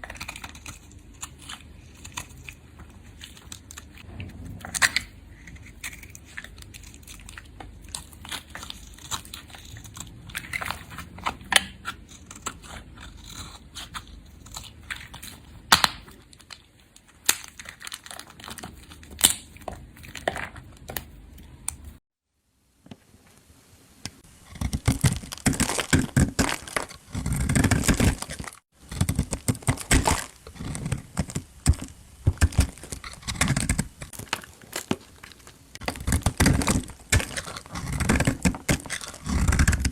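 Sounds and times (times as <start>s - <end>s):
knife crunching through dry soap: 0.0s - 20.6s, 24.4s - 39.9s.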